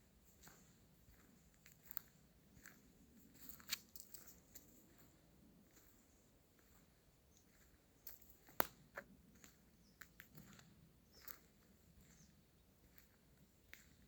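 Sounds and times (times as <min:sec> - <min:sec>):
footsteps on dry leaves and twigs: 0:00.0 - 0:09.5.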